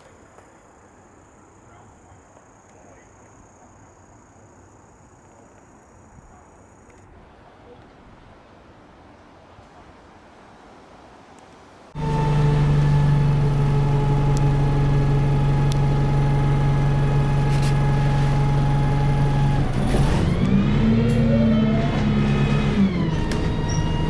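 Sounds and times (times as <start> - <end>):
diesel engine droning: 12.0 - 24.0.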